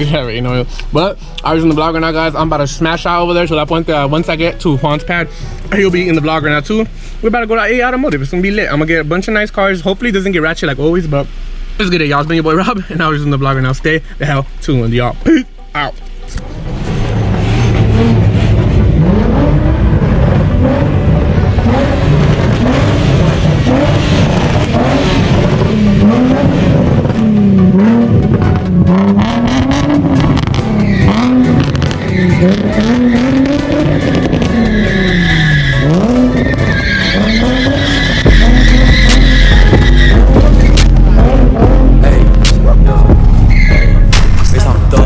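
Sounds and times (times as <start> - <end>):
car engine revving: 16.0 - 45.0
tire squeal: 16.4 - 41.8, 43.3 - 44.2.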